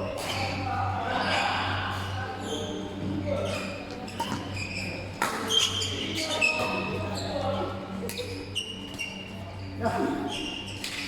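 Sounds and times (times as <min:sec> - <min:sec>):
sneakers squeaking on court: 0:03.4 - 0:07.4, 0:08.1 - 0:11.0.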